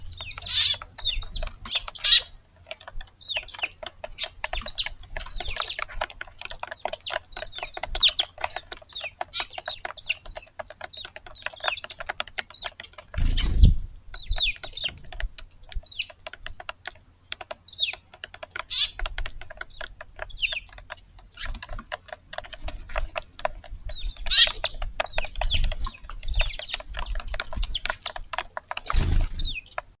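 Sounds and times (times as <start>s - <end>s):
rapid patter of clicks: 0.0s - 30.0s
sparrows chirping: 0.0s - 30.0s.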